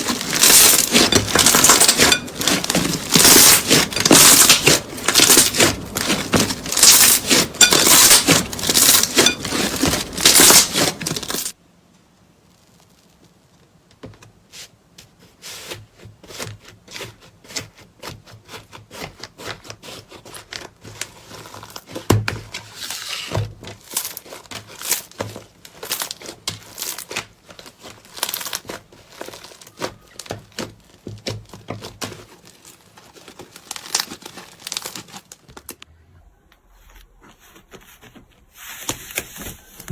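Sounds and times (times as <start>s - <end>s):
slime crackling and popping: 0.0s - 11.6s, 23.8s - 35.9s.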